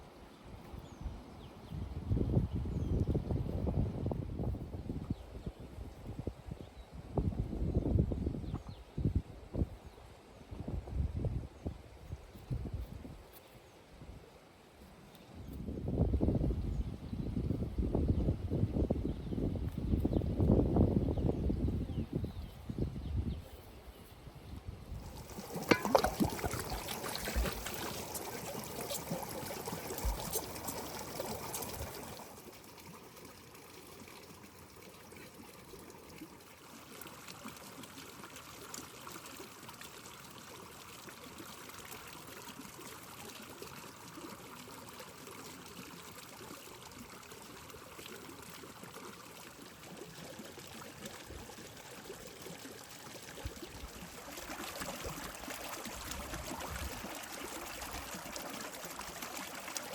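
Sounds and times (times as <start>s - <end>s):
water trickling: 25.0s - 59.9s.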